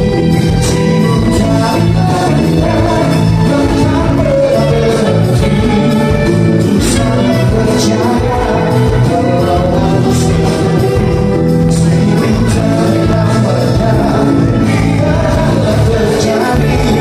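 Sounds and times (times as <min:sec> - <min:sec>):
live band playing: 0:00.0 - 0:17.0
person singing: 0:00.0 - 0:17.0.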